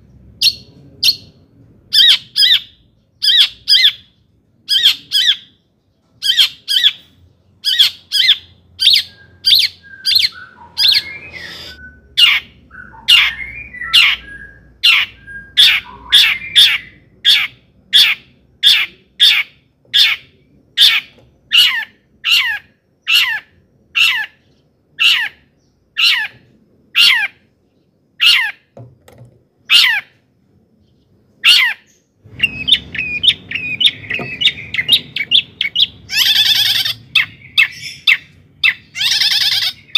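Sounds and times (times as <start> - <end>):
bird chattering song: 0.0 - 28.8, 30.8 - 39.9
bird giving harsh calls: 7.6 - 27.5, 28.2 - 28.8, 29.7 - 30.2, 31.4 - 39.9.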